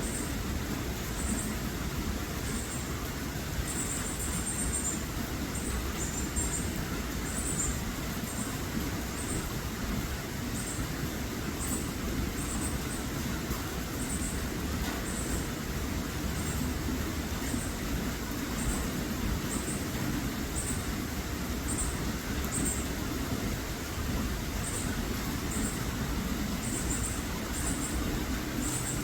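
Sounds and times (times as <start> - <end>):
small bird chirping: 3.6 - 5.0, 5.6 - 8.6, 18.6 - 19.9, 21.7 - 22.9, 24.6 - 25.9, 26.6 - 29.0.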